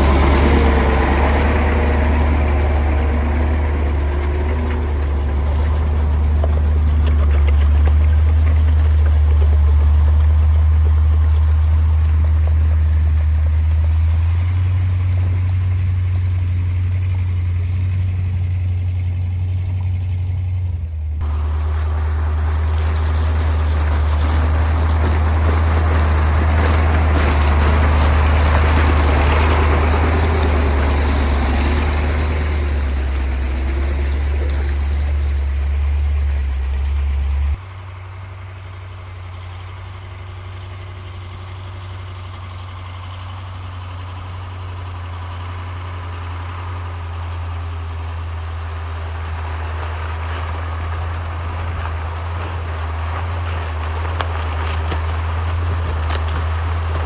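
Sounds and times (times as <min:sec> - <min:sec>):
truck diesel engine droning: 0:00.0 - 0:57.0.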